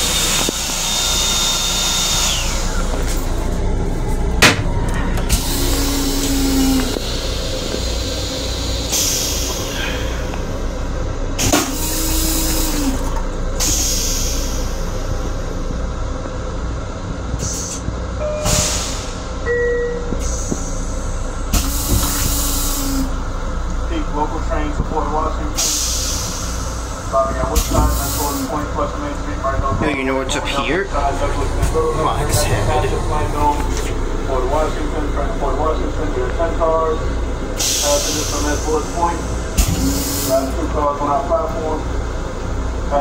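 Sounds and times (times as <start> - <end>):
train low rumble: 0.0 - 43.0
short air hisses: 7.0 - 10.2, 13.6 - 14.9, 18.5 - 19.2, 21.6 - 23.1, 25.6 - 26.8.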